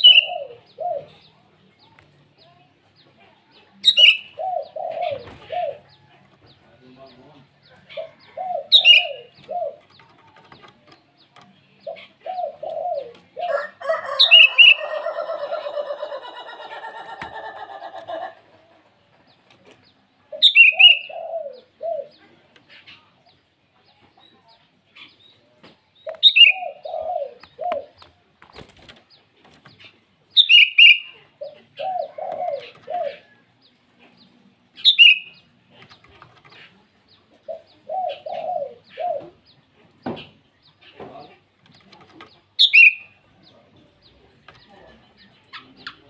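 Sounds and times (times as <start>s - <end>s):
bird calling: 7.8s - 9.9s, 11.8s - 18.8s.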